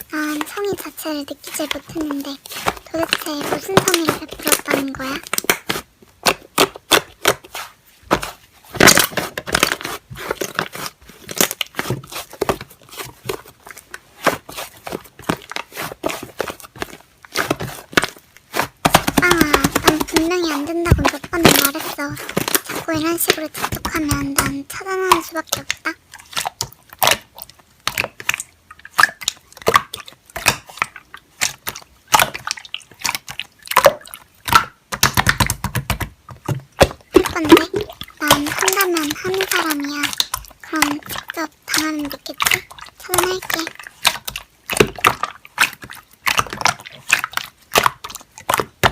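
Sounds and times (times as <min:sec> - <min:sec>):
slime squished by hand: 0:00.2 - 0:48.9.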